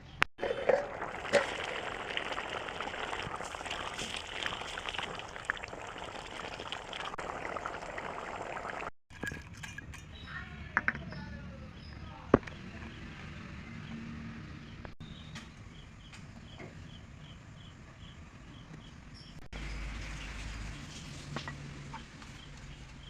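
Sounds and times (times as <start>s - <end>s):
liquid bubbling and sizzling in pan: 0.4s - 10.1s, 19.6s - 23.0s.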